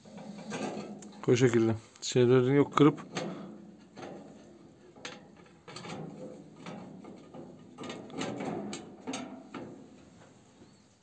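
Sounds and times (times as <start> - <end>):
metal parts clicking and knocking: 3.0 - 10.0.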